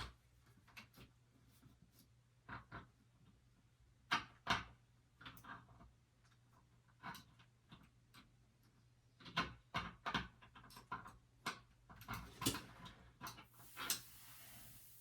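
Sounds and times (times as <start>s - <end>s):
small parts and tools clicking: 13.6s - 14.7s
short hiss: 13.6s - 15.0s.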